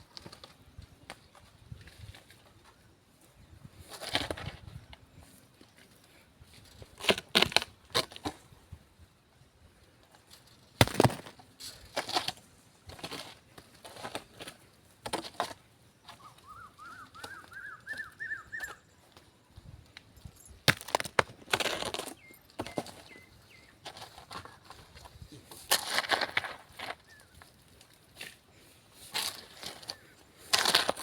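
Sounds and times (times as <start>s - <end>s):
bird chirping: 16.0s - 19.2s, 22.1s - 23.8s.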